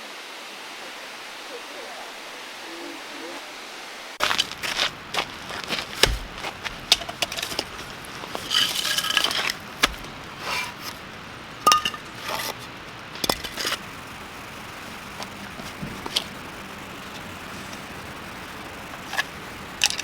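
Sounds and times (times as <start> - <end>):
metal cookware clinking and scraping: 11.6 - 12.6.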